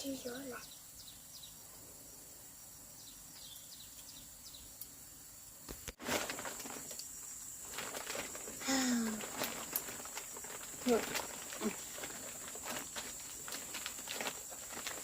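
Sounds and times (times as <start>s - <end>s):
bird chirps: 0.0s - 1.7s, 2.9s - 4.9s.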